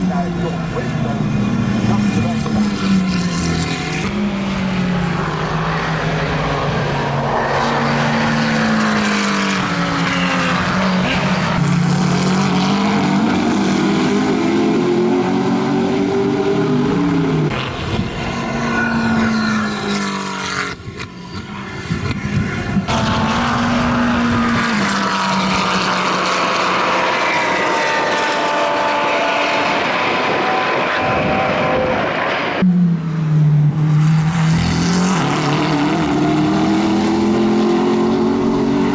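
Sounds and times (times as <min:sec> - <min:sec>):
racing car engine revving: 0:00.0 - 0:33.0, 0:33.7 - 0:38.9.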